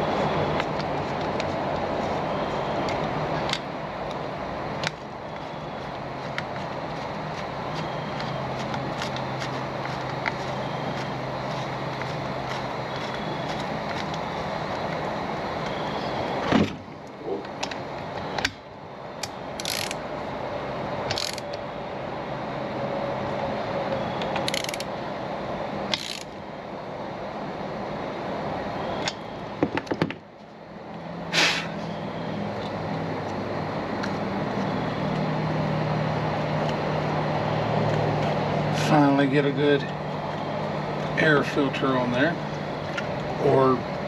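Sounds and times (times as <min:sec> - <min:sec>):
steady background hiss: 0:00.0 - 0:44.0
sharp clicks and knocks: 0:29.0 - 0:30.2.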